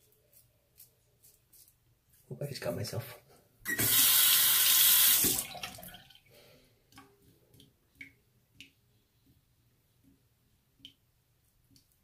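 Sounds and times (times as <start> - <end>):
sink tap running: 3.7 - 5.5.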